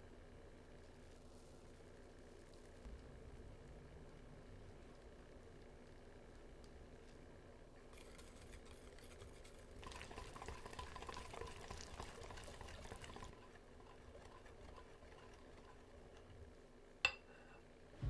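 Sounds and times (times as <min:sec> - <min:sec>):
batter stirred in a bowl: 0:07.9 - 0:16.7.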